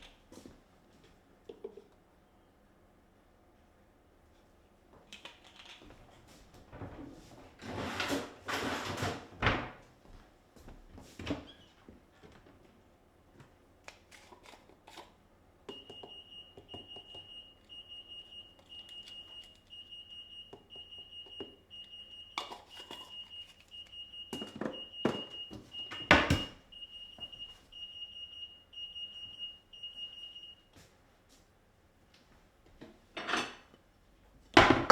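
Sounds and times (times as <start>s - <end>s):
electronic beeper alarm: 15.7s - 30.6s.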